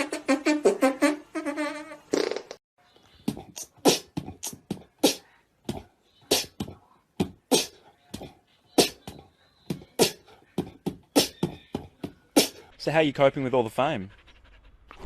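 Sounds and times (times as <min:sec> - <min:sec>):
dog panting: 0:12.6 - 0:15.0.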